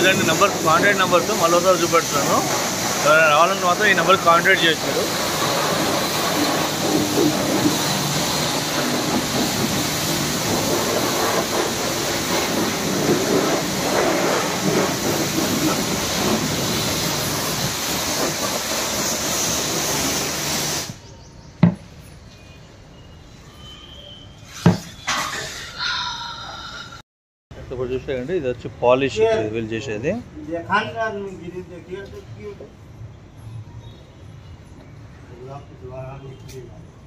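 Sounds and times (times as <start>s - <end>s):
pressure washer spraying: 0.0s - 21.1s.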